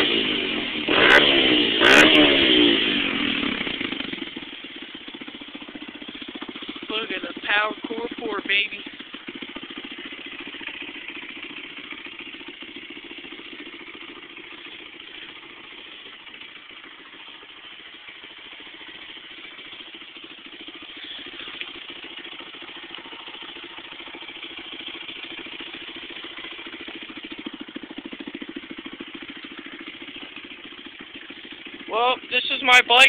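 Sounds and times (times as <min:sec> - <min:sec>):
dirt bike engine idling: 0:00.0 - 0:33.0.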